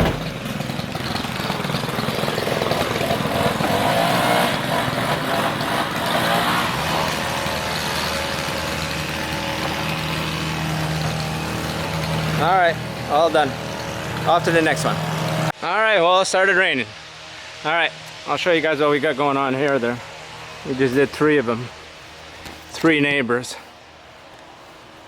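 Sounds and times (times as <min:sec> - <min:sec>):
engine running: 0:00.0 - 0:15.6.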